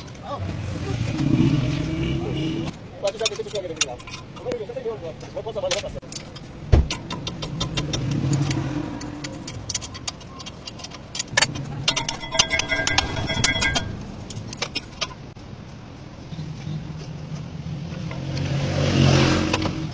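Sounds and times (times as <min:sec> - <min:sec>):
metal tools clinking: 0:03.0 - 0:04.6, 0:09.2 - 0:15.2
ringing metallic clatter: 0:09.4 - 0:15.3.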